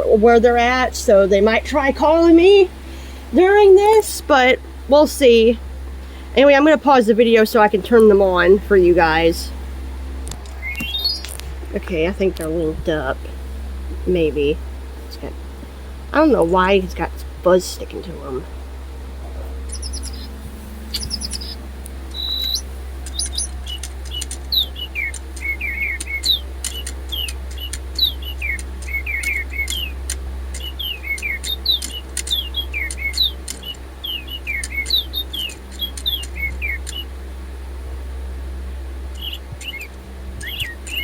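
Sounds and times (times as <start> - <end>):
electronic toy birdsong: 10.4 - 11.4, 19.6 - 37.1, 39.1 - 41.0.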